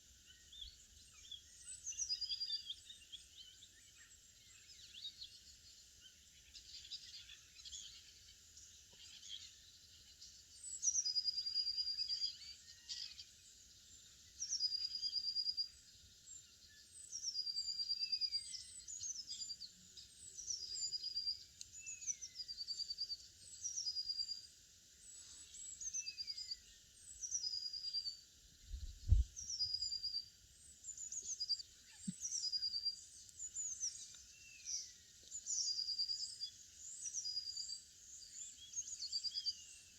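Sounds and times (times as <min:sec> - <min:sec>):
songbirds singing: 0:00.0 - 0:39.9
low thump: 0:28.8 - 0:29.3.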